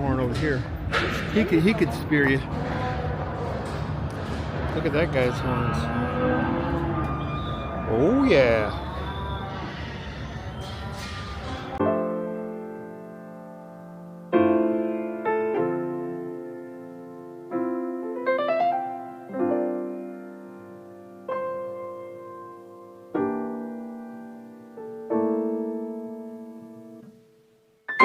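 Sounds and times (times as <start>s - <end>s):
slow piano chords: 11.7s - 28.0s.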